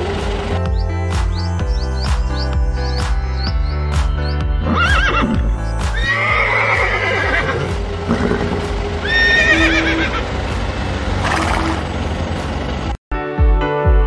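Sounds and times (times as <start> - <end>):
background music: 0.0 - 14.0
horse whinnying: 4.6 - 10.2.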